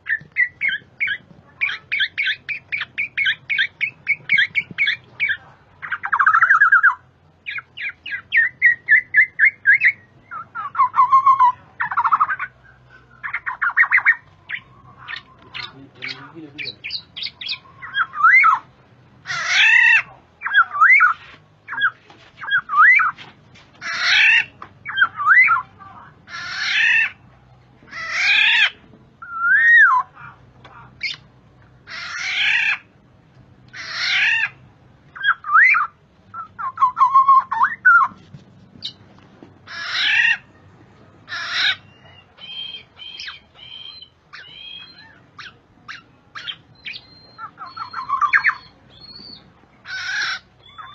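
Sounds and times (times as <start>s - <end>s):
bird harsh nasal squawks: 13.2s - 23.2s, 23.8s - 25.7s, 26.3s - 27.2s, 27.9s - 30.2s, 31.8s - 32.9s, 33.7s - 34.6s, 39.6s - 40.5s, 41.3s - 50.9s
bird fluted whistles: 29.2s - 30.0s, 35.2s - 38.2s, 46.4s - 49.4s.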